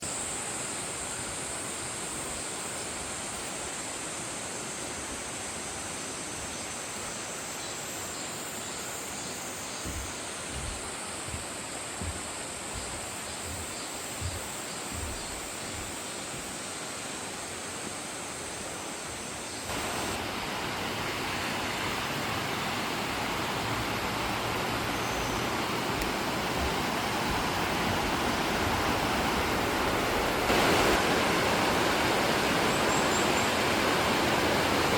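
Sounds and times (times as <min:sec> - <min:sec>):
stream rushing over rocks: 0:00.0 - 0:34.9
soft low thumps: 0:09.8 - 0:16.6, 0:25.8 - 0:29.4.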